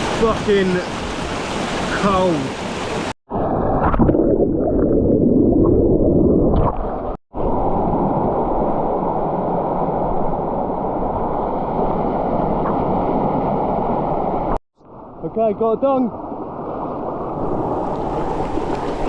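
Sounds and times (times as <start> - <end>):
waterfall rushing into pool: 0.0 - 3.2
water gurgling: 0.0 - 15.2.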